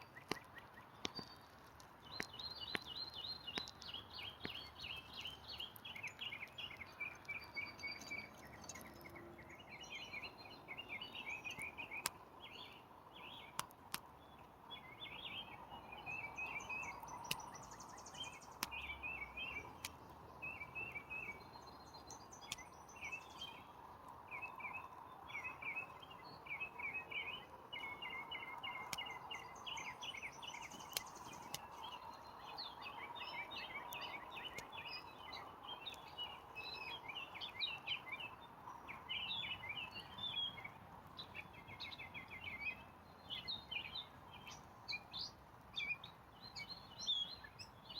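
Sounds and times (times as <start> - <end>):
songbirds chirping and trilling: 0.0 - 47.9
sharp clicks: 13.5 - 14.1, 16.9 - 18.9, 19.7 - 20.2, 22.4 - 22.8, 30.4 - 31.8.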